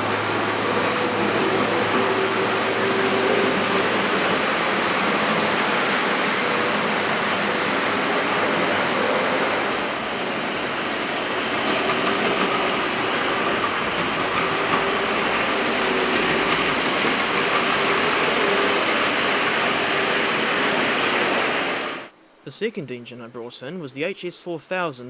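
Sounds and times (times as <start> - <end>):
model train whirring on rails: 0.0 - 22.1
faint hum: 17.8 - 25.0.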